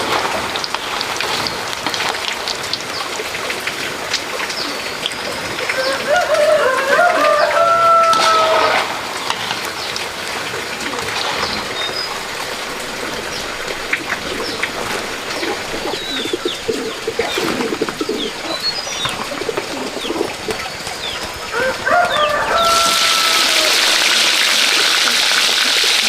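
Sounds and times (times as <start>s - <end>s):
birds chirping: 4.4s - 25.7s
rooster crowing: 5.7s - 9.0s, 21.5s - 24.6s
low cooing: 10.6s - 25.6s.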